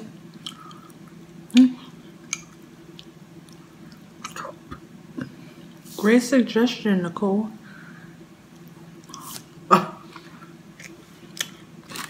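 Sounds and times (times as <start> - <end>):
steady low hum: 0.0 - 12.0
person chewing: 0.3 - 5.5, 8.5 - 12.0.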